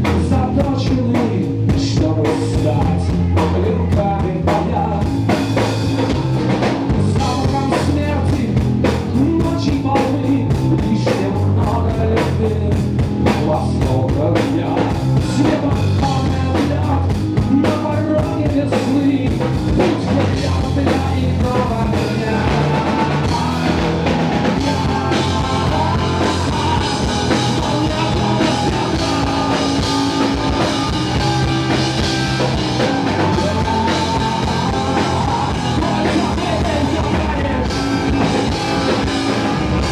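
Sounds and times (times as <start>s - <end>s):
rock band playing: 0.0s - 39.9s
drum kit hits: 12.3s - 39.9s.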